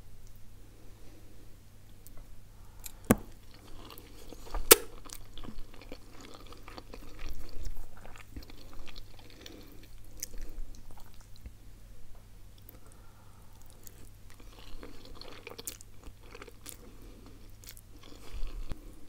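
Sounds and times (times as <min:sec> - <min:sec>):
woman chewing food: 0:02.8 - 0:11.6, 0:12.6 - 0:19.0.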